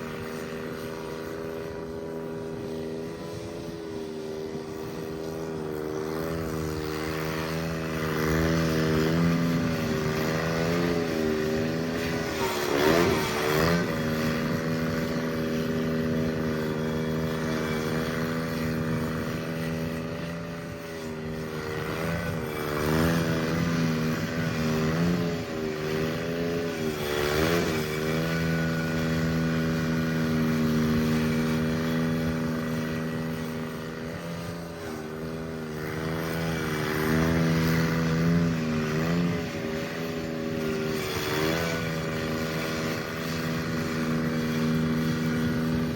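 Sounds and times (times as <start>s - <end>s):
garden tractor engine running: 0.0s - 45.9s.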